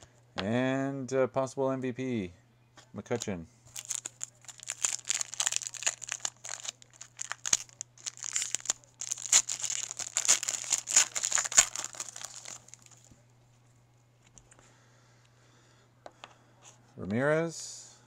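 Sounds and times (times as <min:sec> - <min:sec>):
wrapper tearing and crumpling: 0:03.7 - 0:13.1.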